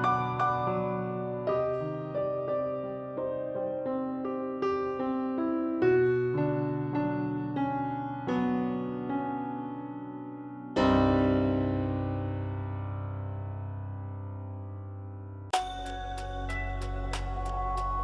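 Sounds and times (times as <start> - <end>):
slow piano melody: 0.0 - 18.0.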